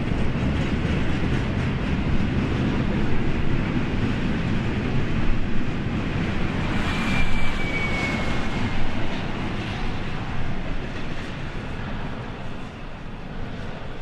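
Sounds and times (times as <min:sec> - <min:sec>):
freight train rolling past: 0:00.0 - 0:14.0
brief thin squeal: 0:06.7 - 0:08.7.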